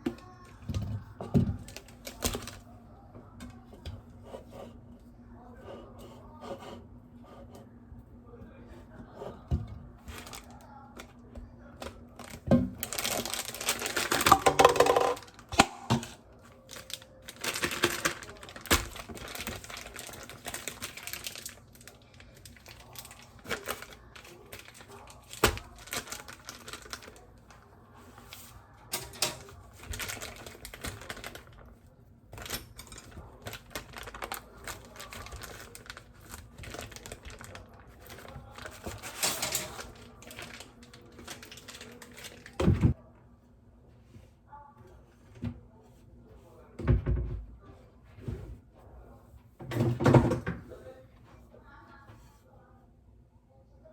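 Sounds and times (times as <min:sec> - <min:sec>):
objects clicking and tapping: 0:11.8 - 0:16.2
clatter of objects: 0:11.8 - 0:43.0.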